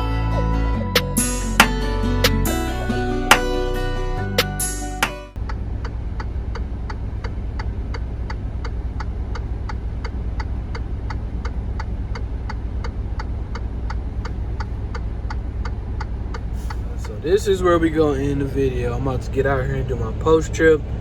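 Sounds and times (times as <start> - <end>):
diesel engine idling: 5.4 - 21.0.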